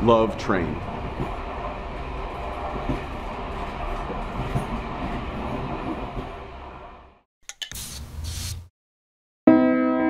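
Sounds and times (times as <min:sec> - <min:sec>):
train rumbling by: 0:00.0 - 0:07.2.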